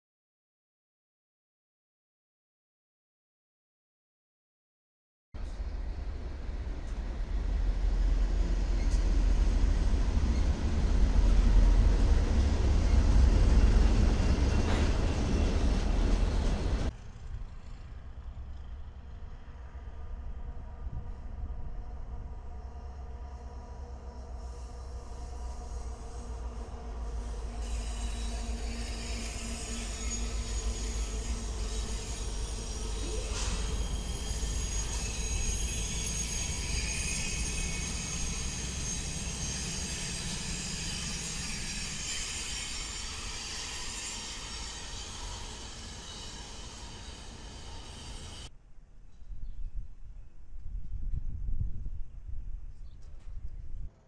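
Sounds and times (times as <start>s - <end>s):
diesel freight train rumble: 5.4s - 48.5s
dull rumble of diesel locomotives: 5.4s - 48.5s
high-pitched whine: 17.3s - 48.5s.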